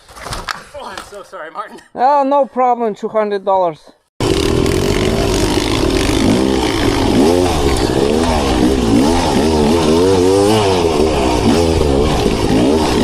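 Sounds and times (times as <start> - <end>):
dirt bike engine revving: 4.2 - 13.0.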